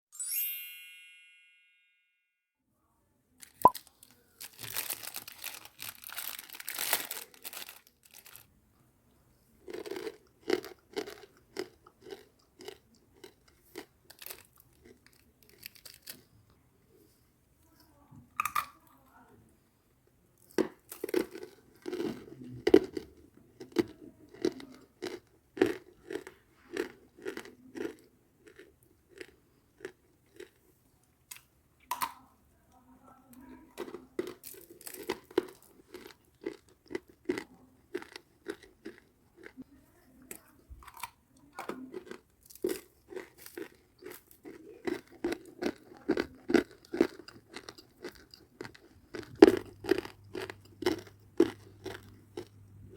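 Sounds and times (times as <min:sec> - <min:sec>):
crunchy biting and chewing: 0:09.6 - 0:16.3, 0:20.4 - 0:30.6, 0:33.8 - 0:39.6, 0:40.8 - 0:52.9.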